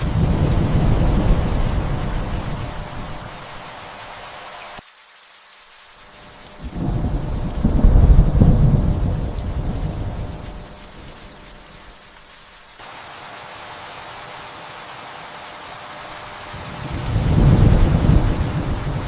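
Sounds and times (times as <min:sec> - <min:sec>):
thunder rumble: 0:00.0 - 0:03.7, 0:06.5 - 0:12.0, 0:16.5 - 0:19.0
steady rain: 0:00.0 - 0:19.0.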